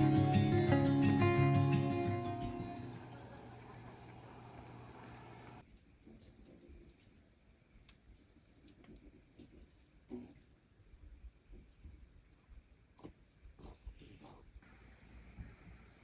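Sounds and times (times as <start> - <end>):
guitar piece: 0.0 - 3.8
insects trilling: 0.1 - 5.6.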